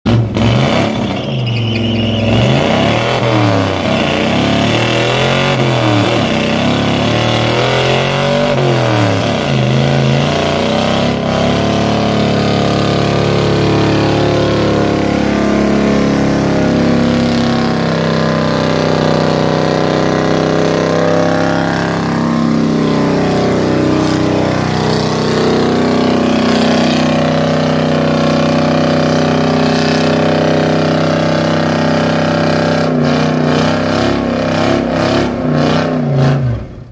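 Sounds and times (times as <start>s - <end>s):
car engine revving hard: 0.1s - 36.9s.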